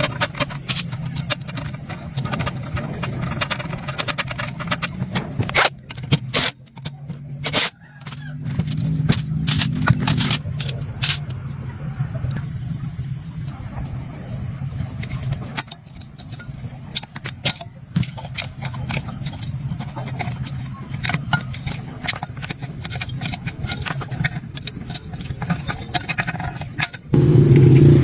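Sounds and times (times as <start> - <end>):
loud steady low sound: 27.1 - 28.0
steady low hum: 27.1 - 28.0.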